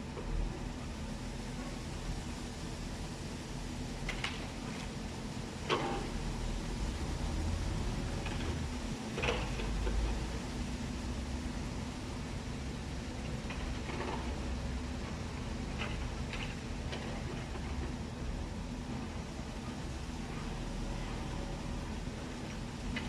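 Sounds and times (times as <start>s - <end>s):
heavy vehicle engine running: 5.6s - 23.0s.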